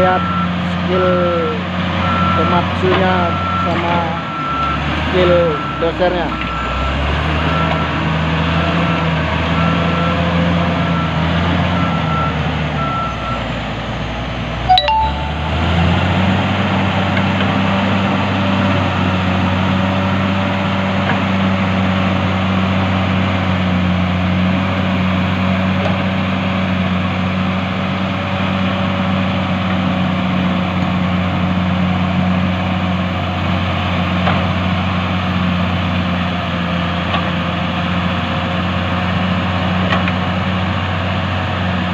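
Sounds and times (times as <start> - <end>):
heavy diesel machines running: 0.0 - 41.9
alarm beeping: 14.7 - 15.9.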